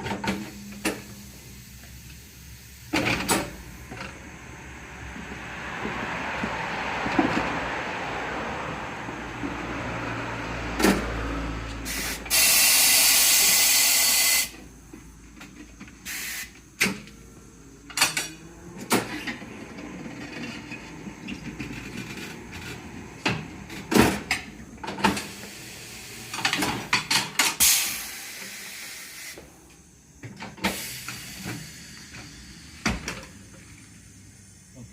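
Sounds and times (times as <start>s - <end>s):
knocks and clanks of tyre work: 0.0s - 8.0s, 8.9s - 34.6s
compressed air hissing: 0.4s - 3.8s, 11.8s - 14.6s, 16.0s - 17.0s, 25.1s - 30.0s, 30.6s - 34.5s.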